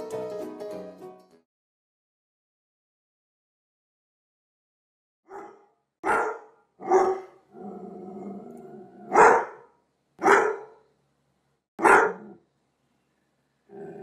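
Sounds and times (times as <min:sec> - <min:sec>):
dog barking: 0:05.3 - 0:07.4, 0:09.1 - 0:10.8, 0:11.8 - 0:12.4
dog growling: 0:07.1 - 0:09.2, 0:12.1 - 0:12.4, 0:13.7 - 0:14.0.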